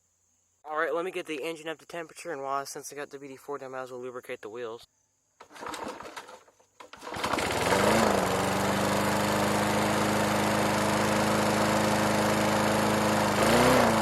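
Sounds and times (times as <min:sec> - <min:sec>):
lawn mower engine running: 0:05.4 - 0:14.0.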